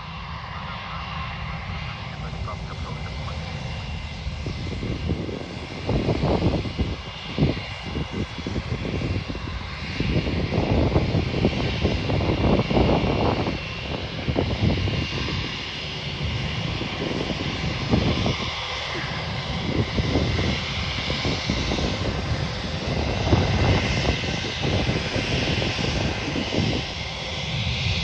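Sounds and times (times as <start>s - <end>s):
jet engines running: 0.0s - 28.0s.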